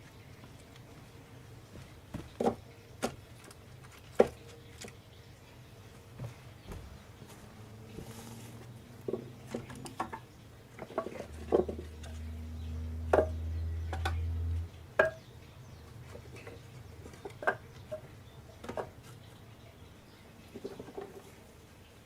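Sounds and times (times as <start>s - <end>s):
low steady hum: 4.5s - 20.6s.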